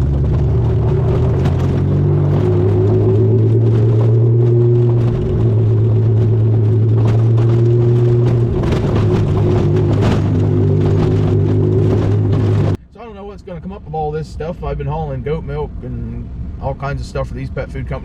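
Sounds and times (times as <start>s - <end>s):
vehicle engine droning: 0.0s - 12.8s.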